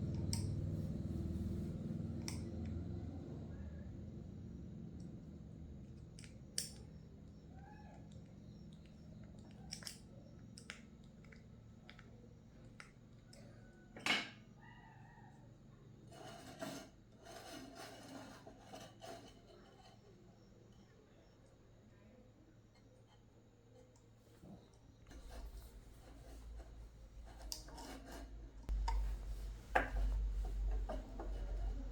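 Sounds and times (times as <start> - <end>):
faint low hum: 0.0 - 31.9
scratchy scraping and snipping: 16.1 - 20.0, 24.4 - 31.9.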